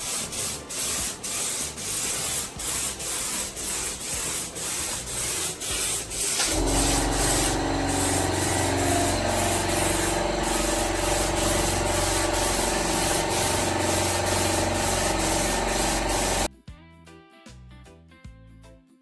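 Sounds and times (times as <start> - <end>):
scratchy sanding noise: 0.0 - 16.5
power tool motor hum: 2.2 - 16.5.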